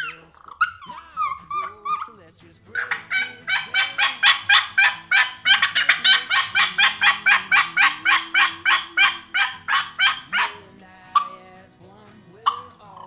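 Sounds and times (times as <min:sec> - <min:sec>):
turkey call notes: 0:00.0 - 0:11.5, 0:12.4 - 0:13.0.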